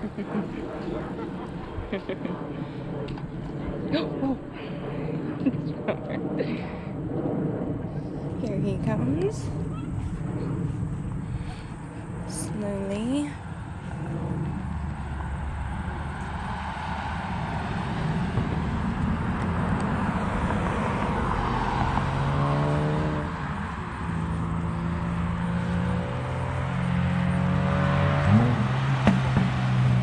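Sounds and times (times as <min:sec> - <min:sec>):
broad steady rush: 0:00.0 - 0:30.0
car engine and exhaust: 0:06.3 - 0:30.0.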